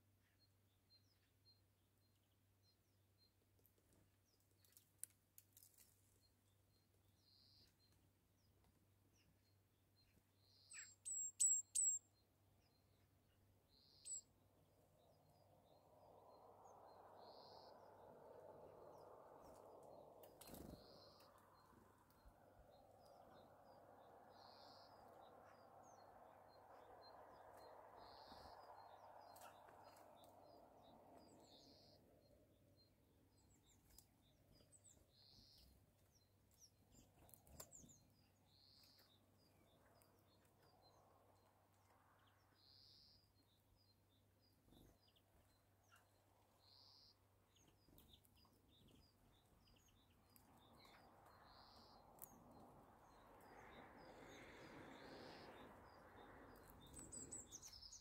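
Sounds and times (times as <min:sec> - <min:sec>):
small bird high call: 0:10.5 - 0:12.2, 0:13.7 - 0:14.4.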